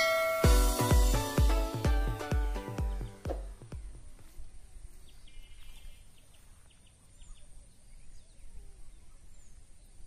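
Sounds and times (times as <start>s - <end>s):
small birds chirping: 3.1s - 10.0s
high falling bird calls: 3.4s - 10.0s.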